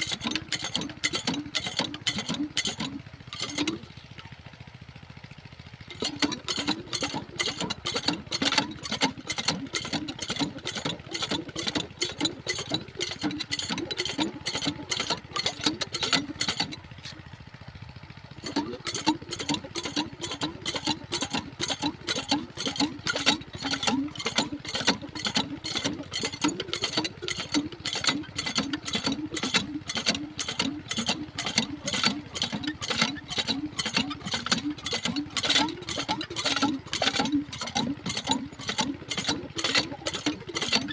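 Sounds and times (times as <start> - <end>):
diesel engine chugging: 0.0 - 40.9.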